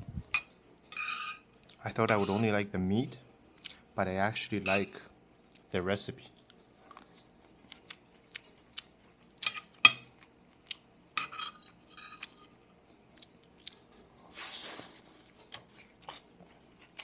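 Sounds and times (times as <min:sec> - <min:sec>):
person chewing: 0:06.4 - 0:09.5, 0:13.0 - 0:17.0.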